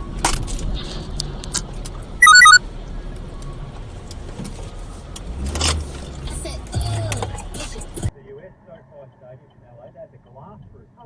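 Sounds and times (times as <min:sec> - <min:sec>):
car cabin road noise: 0:00.1 - 0:08.1
electronic chime beeps: 0:02.2 - 0:02.6.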